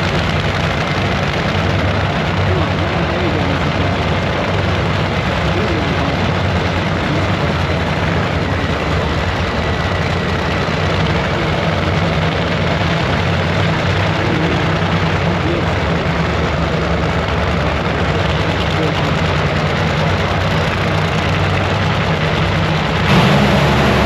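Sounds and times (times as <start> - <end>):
large engine idling: 0.0 - 24.0.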